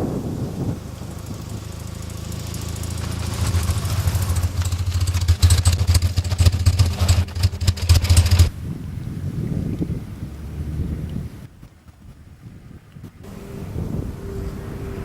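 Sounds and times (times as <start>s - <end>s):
motorcycle engine running: 0.0s - 8.6s, 13.2s - 15.0s
rapid clattering: 0.7s - 8.5s.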